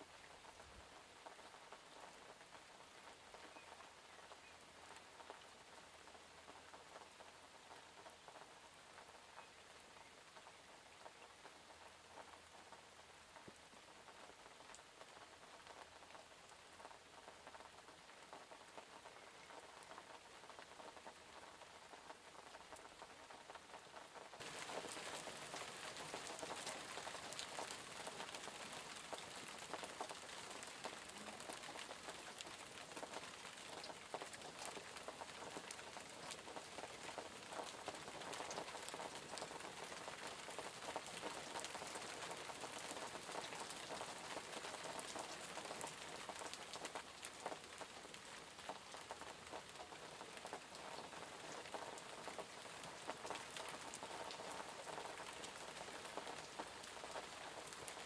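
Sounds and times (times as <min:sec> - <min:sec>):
rain hiss: 0:00.0 - 0:58.0
raindrops pattering: 0:00.0 - 0:58.0.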